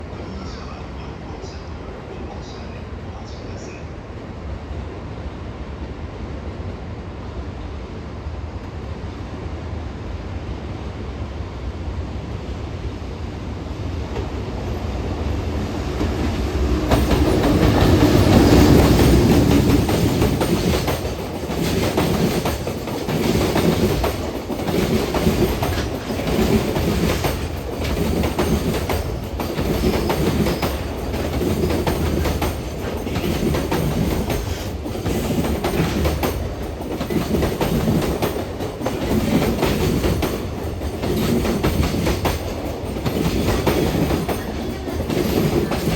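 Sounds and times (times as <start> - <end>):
electric locomotive passing: 0.0 - 45.9
wheels clickety-clack over rail joints: 14.0 - 45.9.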